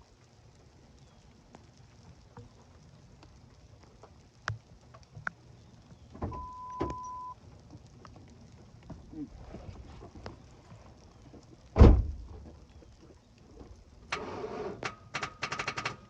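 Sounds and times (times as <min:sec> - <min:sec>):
electronic beep: 0:06.4 - 0:07.4
thump: 0:11.8 - 0:12.4.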